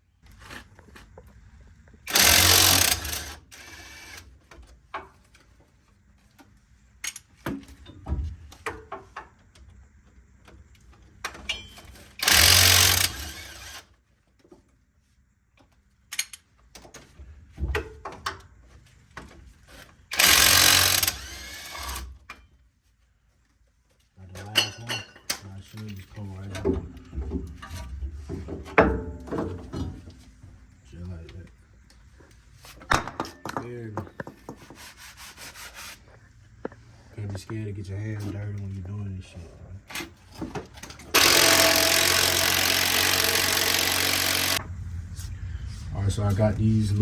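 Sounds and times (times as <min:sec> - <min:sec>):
tools clinking and knocking: 0:11.2 - 0:13.2, 0:24.3 - 0:30.2, 0:32.8 - 0:34.6
impact wrench hammering: 0:41.1 - 0:44.6.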